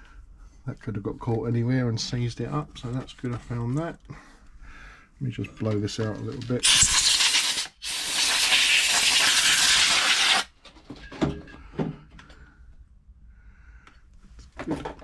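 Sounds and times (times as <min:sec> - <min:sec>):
compressed air hissing: 0:06.6 - 0:10.5.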